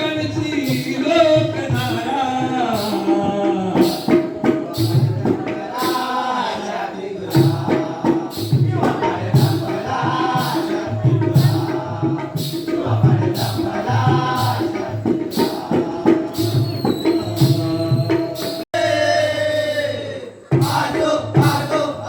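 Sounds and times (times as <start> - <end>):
rhythmic percussion strikes: 0.0 - 22.0.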